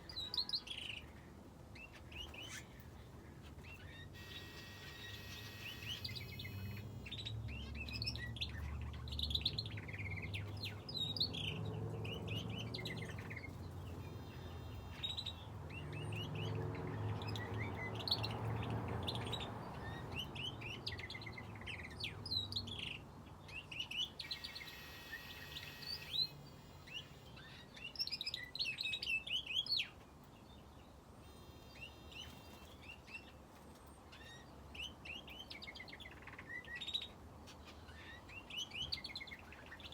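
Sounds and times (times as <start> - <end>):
finches and canary chirping: 0.0 - 39.9.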